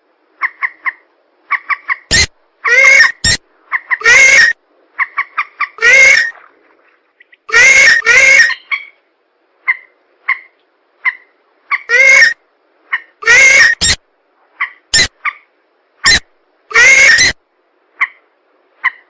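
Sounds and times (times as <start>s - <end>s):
harsh squawking bird calls: 1.5s - 6.3s, 7.5s - 9.0s, 11.1s - 12.4s, 13.2s - 14.0s, 14.6s - 15.4s, 16.0s - 17.4s.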